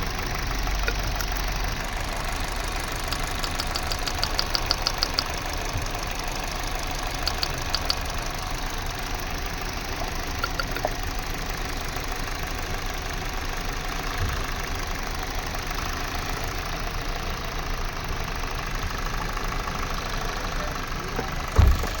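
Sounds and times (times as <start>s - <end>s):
car engine idling: 0.0s - 22.0s
short low thump: 21.6s - 22.0s.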